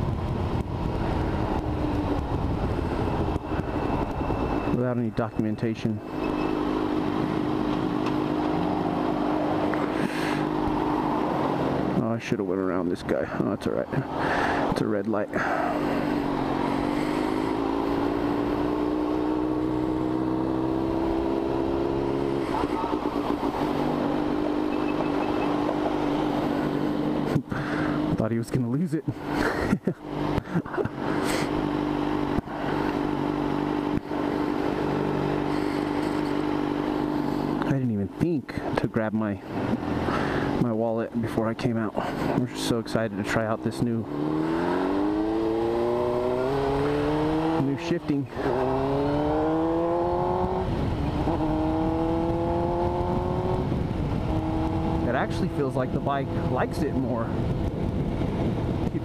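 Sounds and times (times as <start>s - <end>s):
wind noise on microphone: 0.0s - 4.4s, 50.2s - 55.0s, 56.3s - 59.0s
motorcycle engine running: 29.3s - 37.7s, 43.3s - 59.0s.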